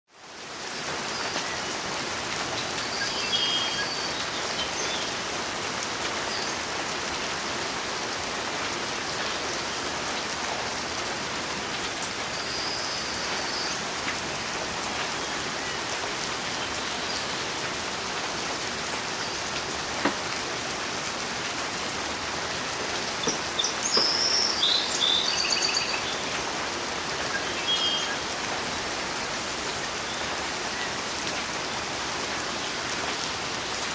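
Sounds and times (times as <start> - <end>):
rain falling: 0.1 - 33.9
bird chirping: 2.9 - 5.2, 23.0 - 26.5, 27.1 - 28.2.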